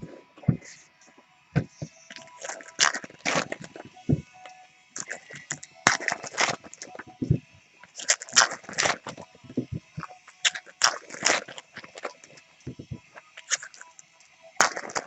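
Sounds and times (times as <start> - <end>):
foil wrappers crinkling and tearing: 5.0 - 7.1, 7.8 - 9.4, 10.0 - 14.0, 14.6 - 15.0.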